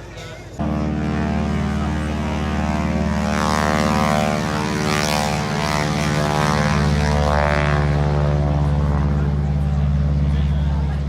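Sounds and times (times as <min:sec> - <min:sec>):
propeller plane engine: 0:00.6 - 0:11.0.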